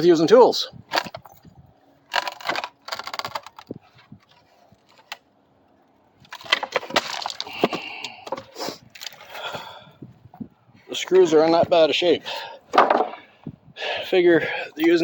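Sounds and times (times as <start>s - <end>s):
wood clicking and creaking: 0.9s - 9.7s, 12.7s - 13.3s
wooden clatter: 2.1s - 5.2s, 6.2s - 9.2s, 12.7s - 13.3s.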